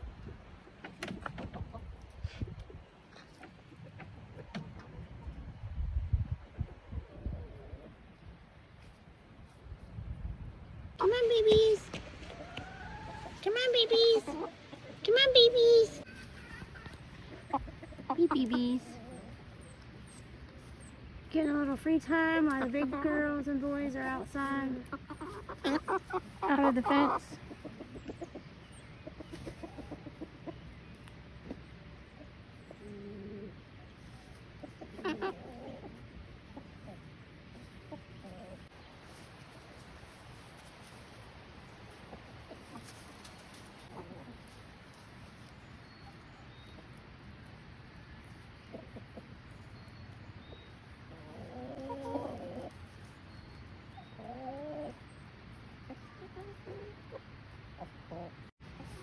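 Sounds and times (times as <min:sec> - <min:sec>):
chickens clucking: 0:00.0 - 0:09.6, 0:11.0 - 0:59.0
chicken calling: 0:11.0 - 0:20.8, 0:24.9 - 0:28.4, 0:50.8 - 0:53.2.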